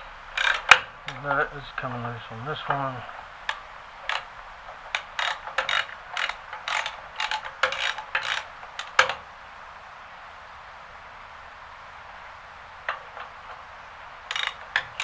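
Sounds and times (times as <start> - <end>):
ratchet wrench clicking: 0.2 - 1.2, 3.5 - 9.2, 14.3 - 15.0.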